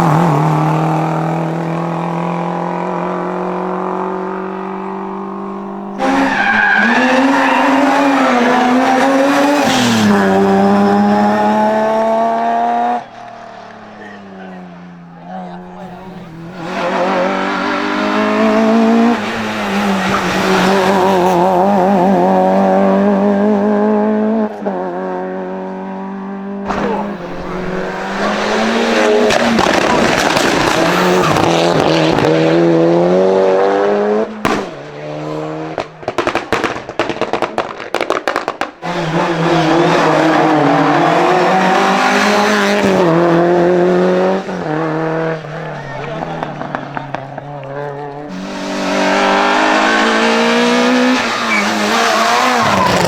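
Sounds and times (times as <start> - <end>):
race car engines revving: 0.0 - 53.0
tyre squeal: 5.9 - 10.0, 50.9 - 53.0
engine pops and crackles: 29.3 - 32.3, 35.7 - 38.8.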